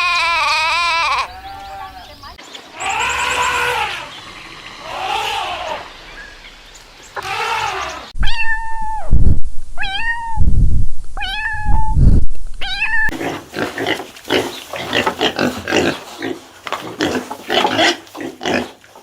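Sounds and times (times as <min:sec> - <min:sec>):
short bleats: 0:00.0 - 0:01.3, 0:02.8 - 0:04.1
cat meowing: 0:07.2 - 0:09.1, 0:09.8 - 0:10.4, 0:11.2 - 0:12.0, 0:12.6 - 0:13.2.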